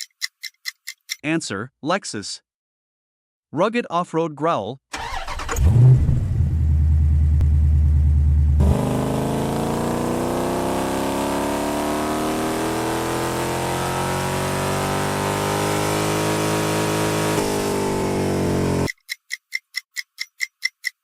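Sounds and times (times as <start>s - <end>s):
car engine accelerating: 5.0s - 18.9s.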